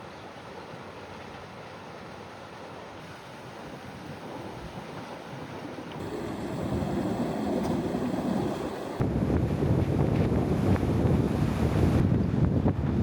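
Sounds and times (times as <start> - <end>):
wind buffeting microphone: 3.5 - 13.0.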